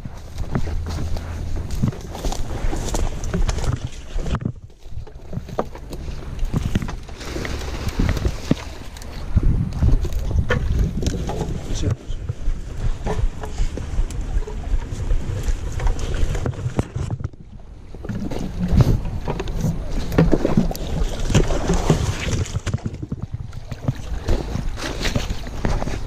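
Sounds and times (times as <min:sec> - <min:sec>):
footsteps crunching through dry grass: 0:00.0 - 0:16.4
waders rubbing and rustling: 0:00.0 - 0:17.2
low rumble: 0:00.0 - 0:26.0.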